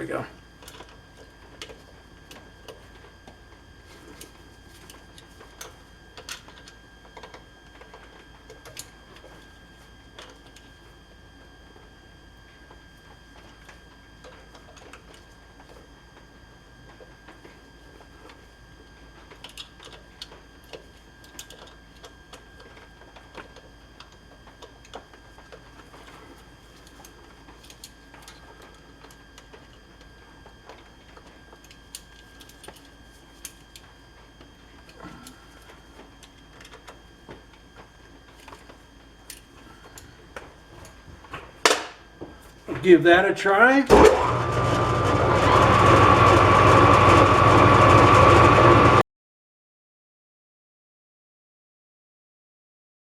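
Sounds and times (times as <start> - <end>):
faint hum with high whine: 0.0 - 49.0
low hum: 43.9 - 49.0.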